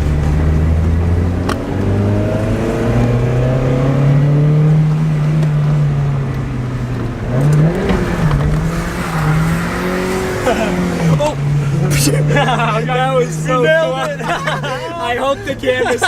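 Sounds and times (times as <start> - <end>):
car engine revving hard: 0.0 - 16.0.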